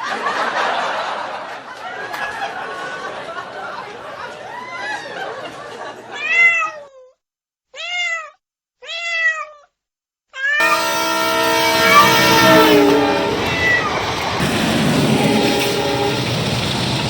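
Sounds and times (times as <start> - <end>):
cat meowing: 6.2 - 7.1, 7.7 - 9.7, 10.4 - 10.6
train horn blast: 10.6 - 17.0.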